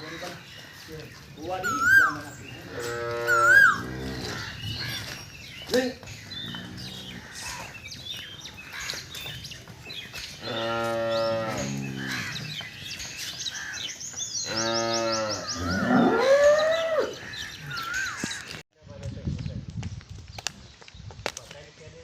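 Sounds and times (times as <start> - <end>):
cattle mooing: 2.6 - 5.1, 6.4 - 7.2, 10.4 - 12.6, 14.5 - 17.2.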